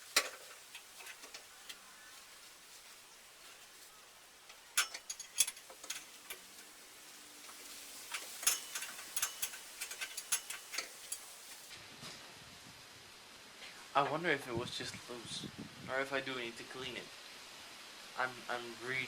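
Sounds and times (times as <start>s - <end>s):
metallic clicks of hand tools: 4.5s - 6.4s, 8.1s - 11.3s.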